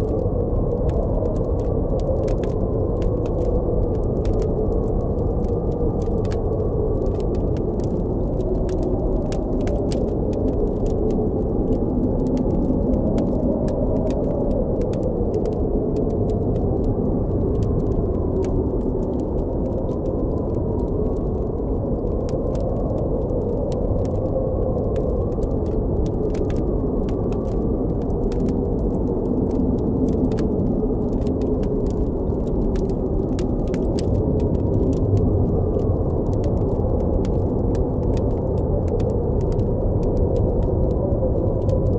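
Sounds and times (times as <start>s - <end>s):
campfire crackling: 0.0s - 41.9s
howling wind: 0.0s - 41.9s.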